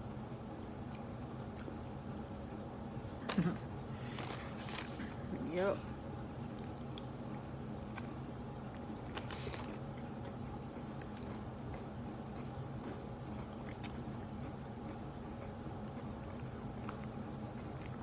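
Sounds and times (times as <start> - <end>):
steady low hum: 0.0 - 18.0
chewing fried chicken: 0.8 - 2.1, 6.4 - 18.0.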